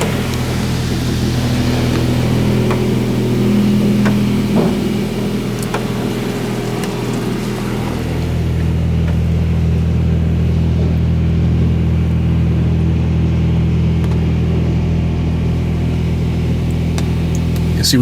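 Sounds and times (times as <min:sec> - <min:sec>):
hiss of water spray: 0:00.0 - 0:10.2
car wash pumps humming: 0:00.0 - 0:18.0.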